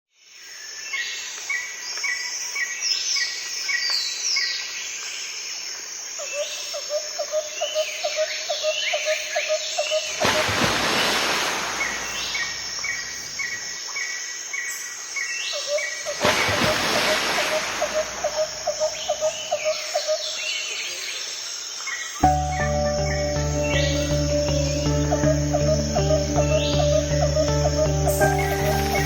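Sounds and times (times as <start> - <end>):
birds singing: 11.8 - 29.0.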